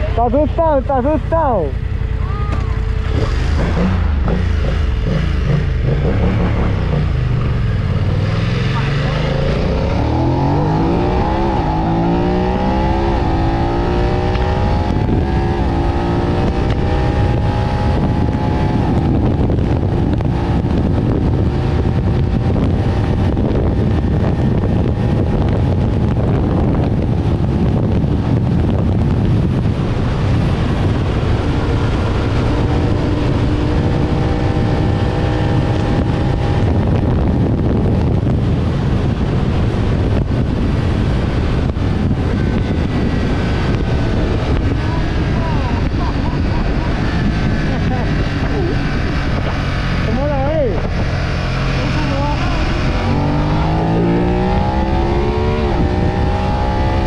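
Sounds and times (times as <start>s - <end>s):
motorcycle engine accelerating: 0.0s - 57.0s
wind rush on microphone: 0.0s - 57.0s.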